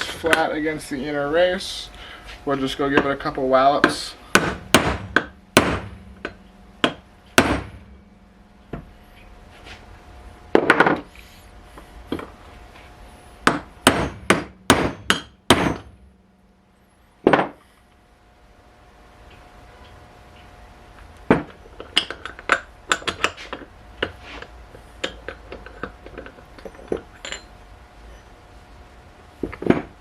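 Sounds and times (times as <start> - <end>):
hammer striking metal tool: 13.5 - 15.9.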